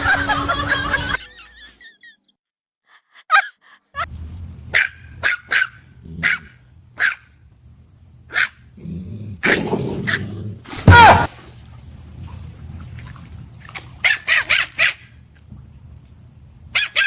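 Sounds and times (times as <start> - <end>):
dog barking: 4.7 - 7.3, 8.3 - 8.6, 14.0 - 15.0, 16.8 - 17.0.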